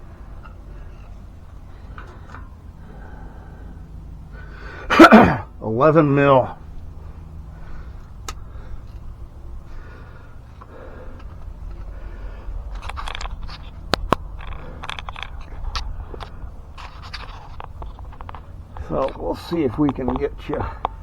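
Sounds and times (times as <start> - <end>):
faint rustling: 0.0 - 21.0
wrench clicking and scraping on metal: 0.1 - 3.9, 12.6 - 21.0.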